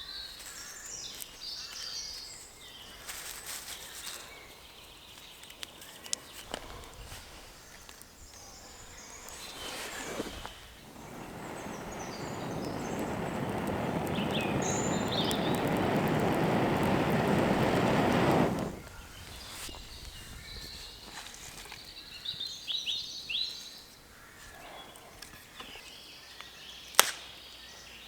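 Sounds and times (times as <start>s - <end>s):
faint birds chirping: 0.0s - 21.1s
person blowing into tinder: 9.6s - 18.9s.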